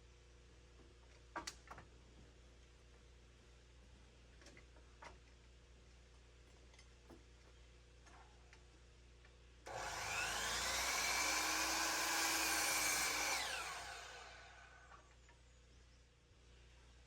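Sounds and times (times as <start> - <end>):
electric power tool motor whining: 9.7 - 14.9.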